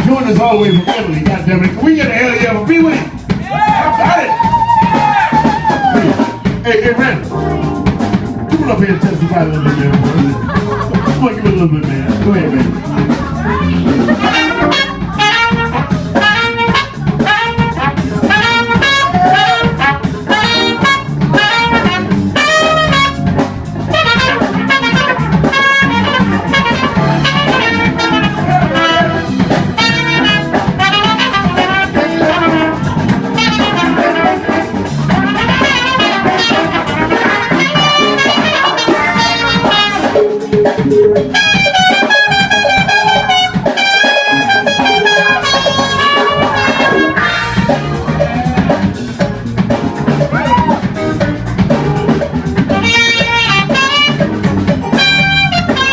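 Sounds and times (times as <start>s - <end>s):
blues band jamming: 0.0s - 55.9s
horn solo: 13.2s - 40.5s, 41.2s - 49.0s, 52.6s - 55.9s.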